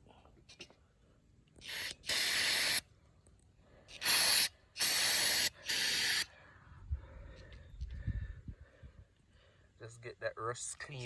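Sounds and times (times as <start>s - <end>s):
aerosol spray hissing: 1.6s - 2.8s, 3.9s - 6.3s.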